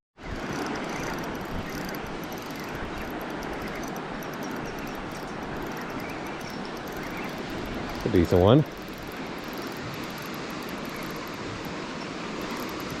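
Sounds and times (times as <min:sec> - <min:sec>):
faint light ticking: 0:00.4 - 0:13.0.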